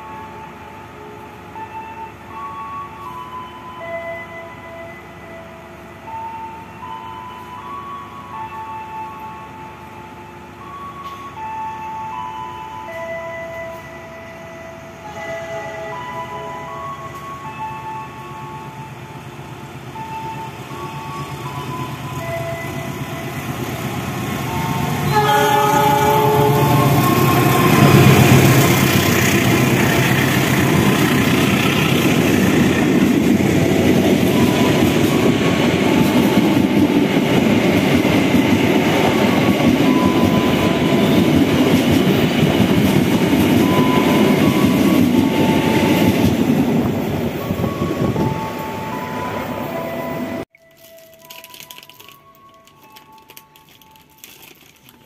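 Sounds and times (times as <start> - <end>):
train horn: 0.0 - 19.0, 19.9 - 33.2, 39.8 - 41.5, 43.6 - 46.4
train wheels rumbling on rail: 12.9 - 50.4.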